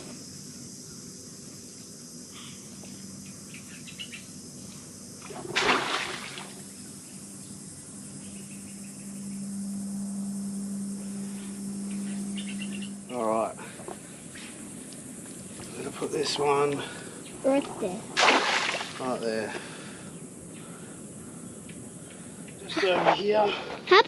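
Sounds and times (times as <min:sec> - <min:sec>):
low steady hum: 0:00.0 - 0:22.8
insects buzzing: 0:00.0 - 0:24.0.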